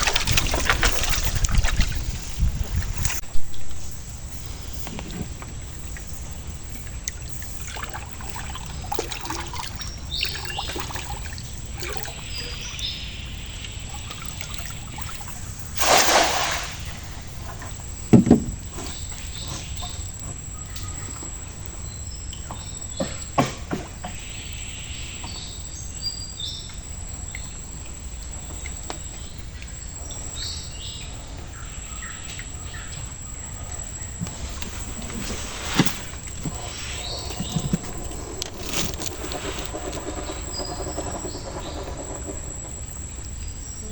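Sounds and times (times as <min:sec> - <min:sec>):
water splashing: 0:00.0 - 0:03.3, 0:04.2 - 0:17.6, 0:33.7 - 0:42.7
steady hiss of water: 0:00.0 - 0:18.0
birds chirping: 0:00.0 - 0:43.9
sharp knocks: 0:18.1 - 0:18.7.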